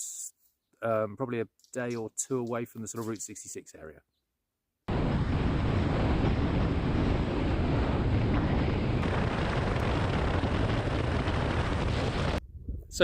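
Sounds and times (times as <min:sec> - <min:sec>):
wind buffeting microphone: 0:04.9 - 0:13.0.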